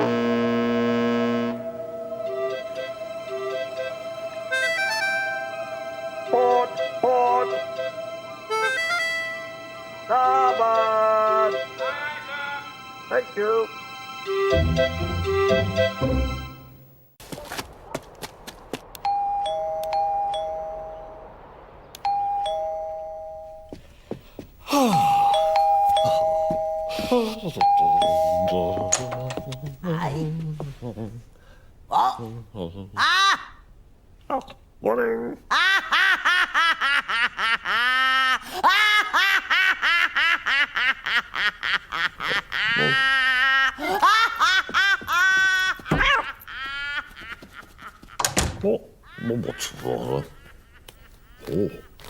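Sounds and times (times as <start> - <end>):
two-tone doorbell chime: 19.0 - 21.0, 22.1 - 23.8, 25.2 - 29.6.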